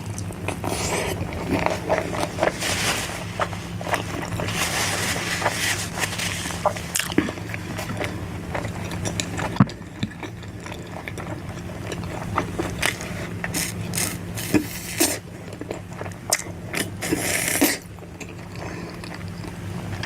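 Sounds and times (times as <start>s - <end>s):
low hum: 0.0s - 17.0s
wet chewing and smacking: 6.5s - 14.6s.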